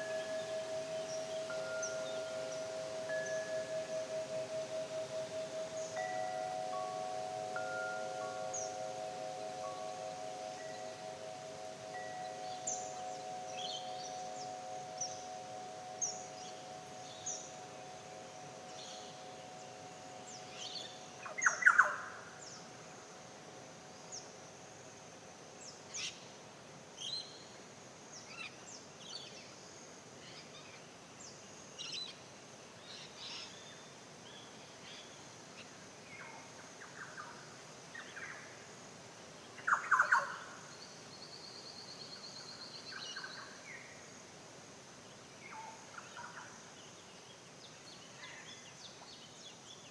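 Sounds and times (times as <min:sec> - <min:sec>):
wild birds singing and calling: 0:00.0 - 0:22.8, 0:39.6 - 0:40.6, 0:45.4 - 0:49.9
faint steady hum: 0:00.0 - 0:49.9.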